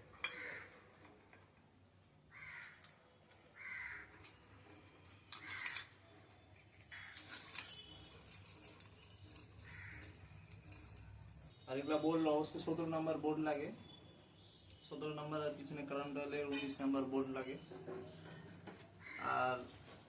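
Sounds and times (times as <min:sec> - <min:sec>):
crow cawing: 0:00.3 - 0:00.8, 0:02.3 - 0:02.9, 0:03.6 - 0:04.3, 0:09.6 - 0:10.2, 0:19.0 - 0:19.4
metallic clinks and rattles: 0:05.0 - 0:19.0.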